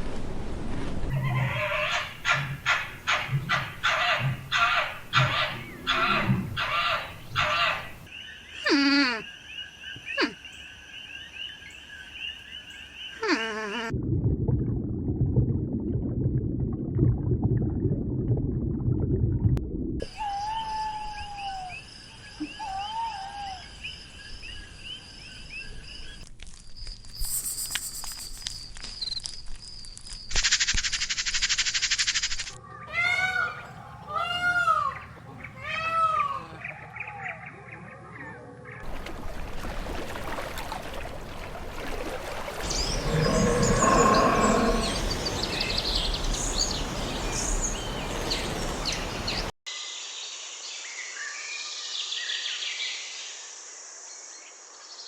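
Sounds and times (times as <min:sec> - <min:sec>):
outdoor ambience hiss: 0:00.0 - 0:13.8, 0:20.1 - 0:30.6, 0:38.9 - 0:55.0
repeated arching animal calls: 0:01.1 - 0:10.6, 0:42.7 - 0:45.3
low animal rumbling: 0:42.7 - 0:45.4.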